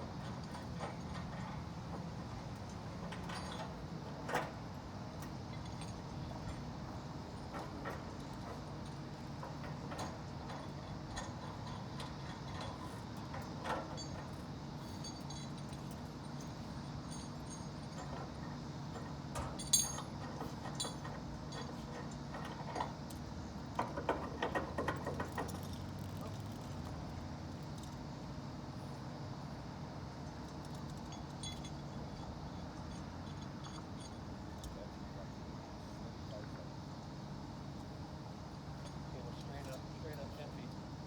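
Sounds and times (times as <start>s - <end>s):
metallic clinks and knocks: 19.0s - 22.9s, 30.4s - 34.8s.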